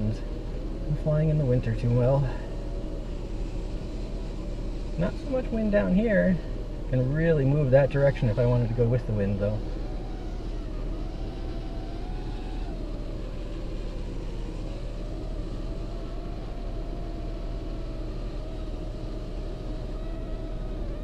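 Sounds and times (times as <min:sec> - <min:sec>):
low wind rumble: 0:00.0 - 0:21.0
quadcopter motors whining: 0:00.0 - 0:21.0.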